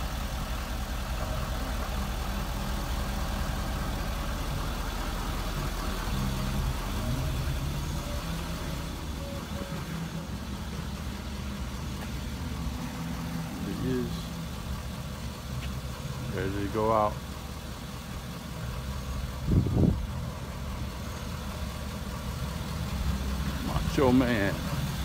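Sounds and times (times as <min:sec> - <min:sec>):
pickup engine idling: 0:00.0 - 0:25.0.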